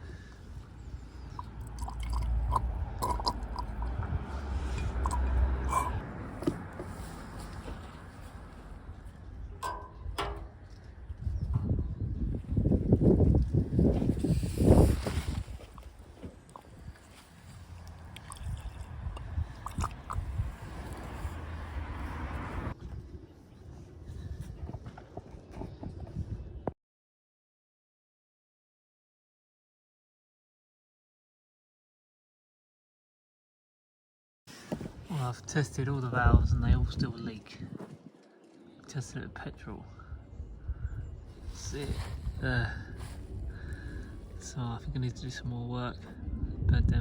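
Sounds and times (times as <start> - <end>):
liquid squishing and gurgling: 1.3 - 4.2, 4.8 - 6.0, 14.8 - 21.3
handling clicks and knocks: 9.6 - 10.9.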